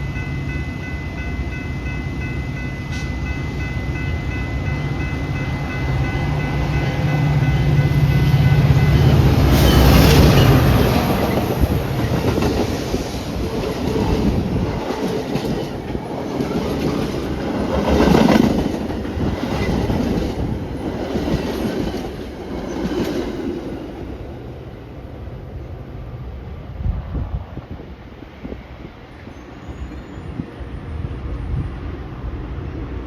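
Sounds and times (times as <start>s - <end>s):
train engine hum: 0.0s - 33.0s
train wheels clattering: 9.5s - 23.8s.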